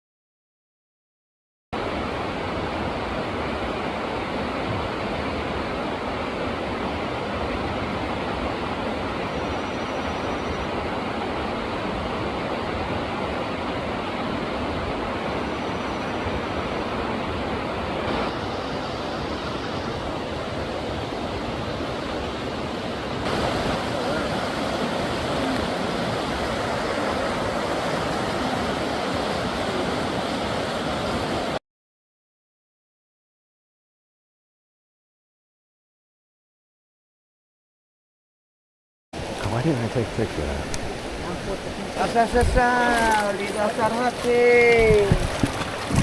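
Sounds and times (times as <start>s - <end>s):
river water rushing: 1.8s - 31.6s, 39.2s - 46.0s.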